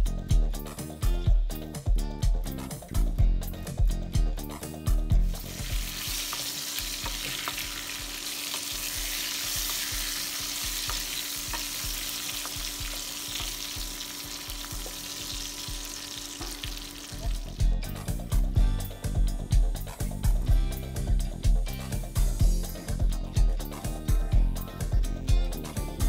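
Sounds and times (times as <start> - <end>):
background music: 0.0 - 26.0
chicken sizzling in hot oil: 5.2 - 17.6
spatula stirring and tapping pan: 5.5 - 15.5.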